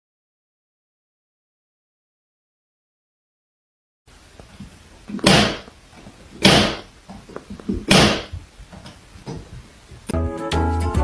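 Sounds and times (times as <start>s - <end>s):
loud bangs: 5.2s - 5.7s, 6.4s - 6.9s, 7.8s - 8.3s.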